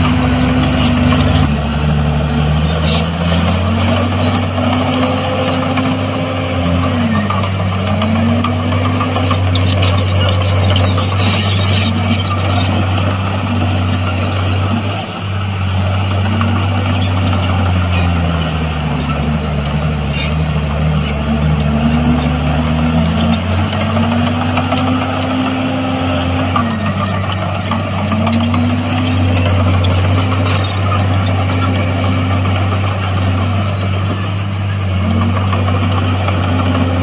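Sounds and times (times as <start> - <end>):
diesel engine drone: 0.0 - 37.0
higher engine tone: 0.0 - 37.0.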